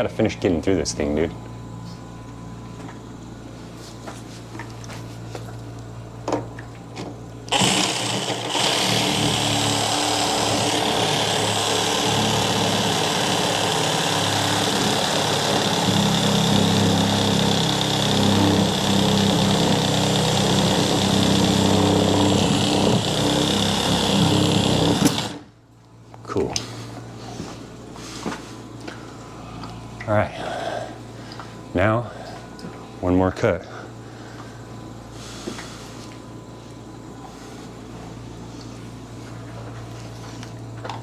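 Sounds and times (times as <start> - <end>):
power saw cutting pipe: 7.5 - 25.5.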